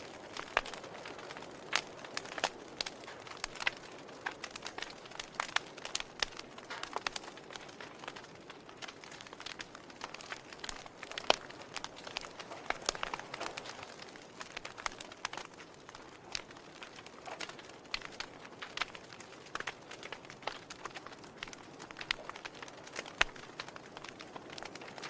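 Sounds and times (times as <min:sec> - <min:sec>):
fire crackling and popping: 0:00.0 - 0:25.0.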